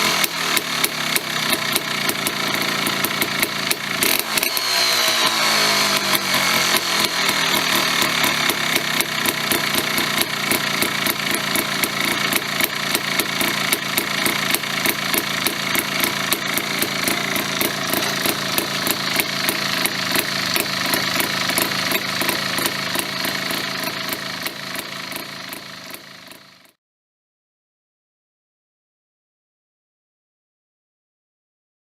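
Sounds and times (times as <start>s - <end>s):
two-stroke motorcycle engine idling: 0.0s - 26.8s.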